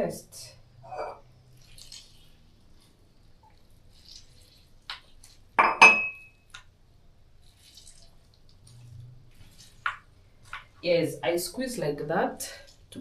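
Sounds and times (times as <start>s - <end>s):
kitchenware clinking: 5.6s - 6.3s
utensil clinking against dish: 5.6s - 6.3s.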